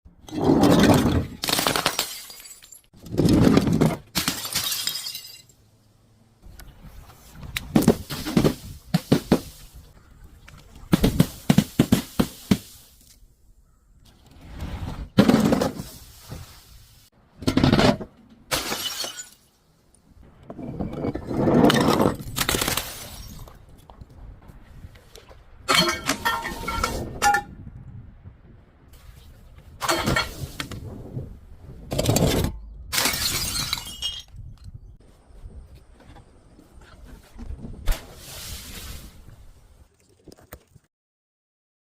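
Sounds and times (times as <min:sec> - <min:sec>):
glass bottles shattering: 0:00.6 - 0:02.9, 0:04.1 - 0:05.6, 0:18.5 - 0:19.5, 0:25.7 - 0:27.5, 0:29.8 - 0:30.5, 0:32.2 - 0:34.4
glass pieces tinkling: 0:33.1 - 0:34.3.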